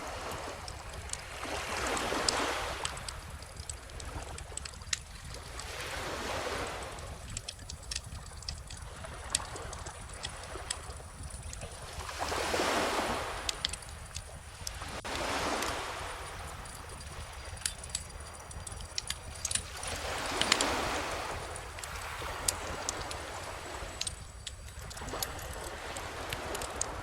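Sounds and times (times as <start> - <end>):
ocean waves washing ashore: 0.0 - 27.0
bonfire crackling and popping: 2.8 - 5.7, 7.2 - 12.3, 13.3 - 14.8, 15.6 - 27.0.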